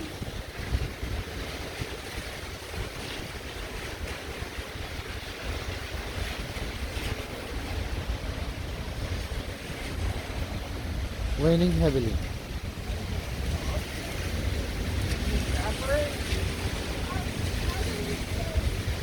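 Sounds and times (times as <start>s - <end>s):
heavy rain falling: 0.0s - 19.0s
wind rumbling on microphone: 0.0s - 19.0s.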